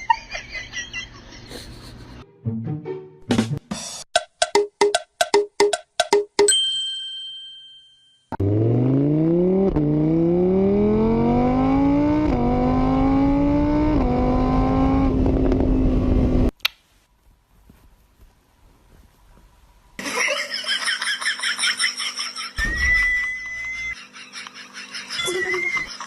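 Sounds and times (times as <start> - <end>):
ringing chime: 6.5 - 8.3
car engine accelerating: 8.4 - 16.5.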